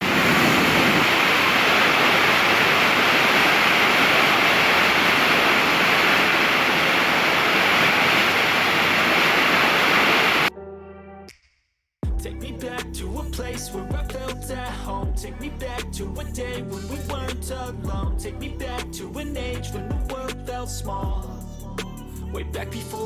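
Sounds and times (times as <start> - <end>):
loud rushing hiss: 0.0 - 10.5.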